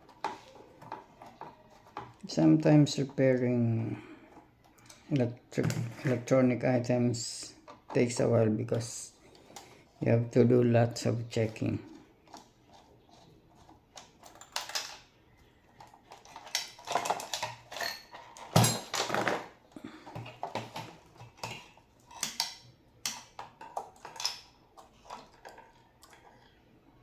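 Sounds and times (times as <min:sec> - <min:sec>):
hand tools clicking and scraping metal: 0:15.8 - 0:26.3.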